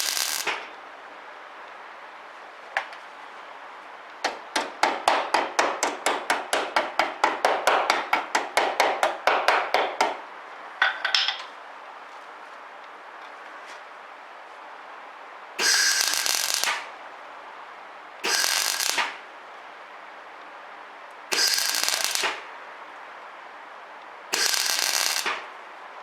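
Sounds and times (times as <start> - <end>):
hammer tapping on sheet steel: 4.2 - 10.2.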